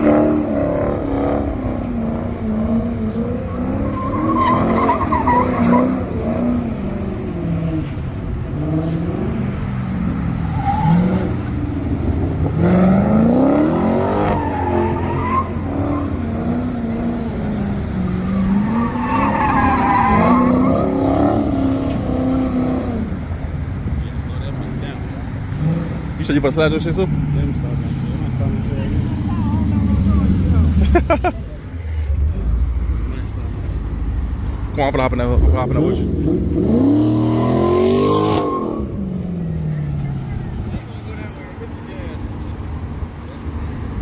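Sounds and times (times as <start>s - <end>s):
tires squealing: 0.0s - 23.2s, 32.0s - 44.0s
car engine revving: 0.0s - 23.4s, 32.0s - 44.0s.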